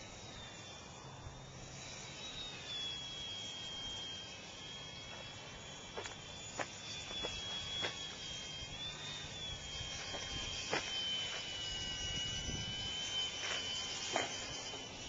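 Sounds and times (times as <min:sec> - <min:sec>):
electric motor whining: 0:00.0 - 0:15.0
wind rumbling on microphone: 0:09.4 - 0:13.0.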